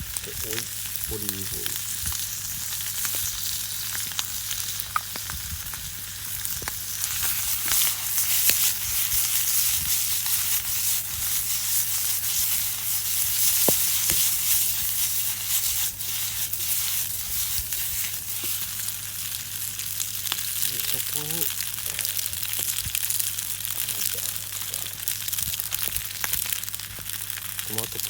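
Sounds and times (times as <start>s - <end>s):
pasta sizzling in a frying pan: 0.0s - 28.0s.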